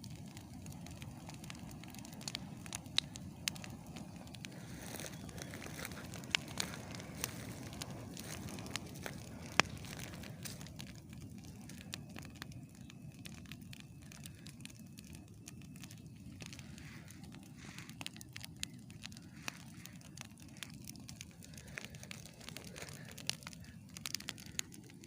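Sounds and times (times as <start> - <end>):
campfire crackling and popping: 0.0 - 25.0
loud fire snap: 0.0 - 25.0.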